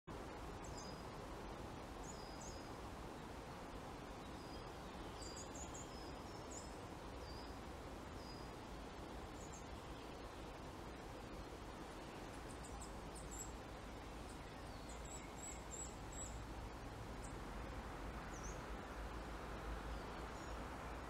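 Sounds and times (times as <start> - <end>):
woodland background hiss: 0.1 - 21.0
faint high bird chirps: 4.1 - 7.6, 12.0 - 16.4.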